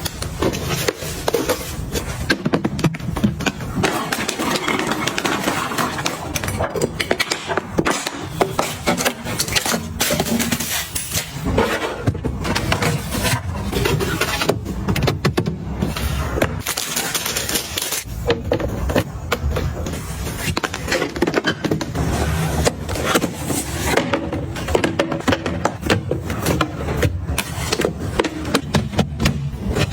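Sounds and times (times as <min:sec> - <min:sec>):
packaging rustling: 0:16.1 - 0:18.1.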